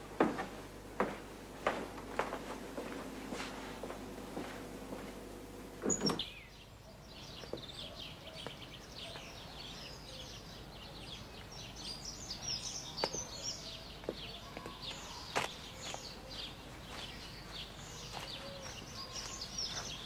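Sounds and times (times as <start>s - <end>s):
small birds chirping: 1.9s - 20.0s.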